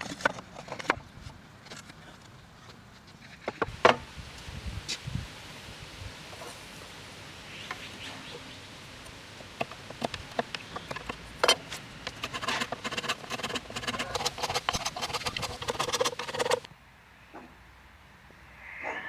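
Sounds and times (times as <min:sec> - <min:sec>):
faint steady hiss: 0:01.3 - 0:19.0
sharp clicks and scrapes: 0:09.6 - 0:16.7.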